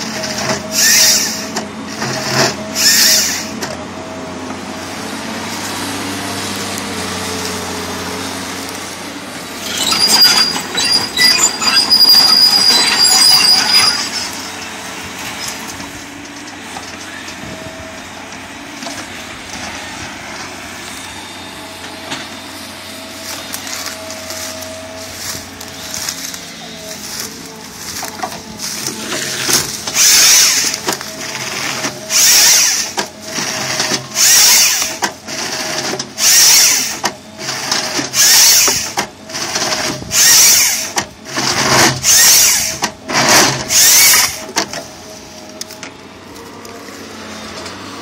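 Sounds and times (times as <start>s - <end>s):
saw cutting wood with whine: 0.0s - 3.6s, 4.9s - 14.6s, 20.6s - 44.6s
wood-cutting machine running: 0.0s - 48.0s.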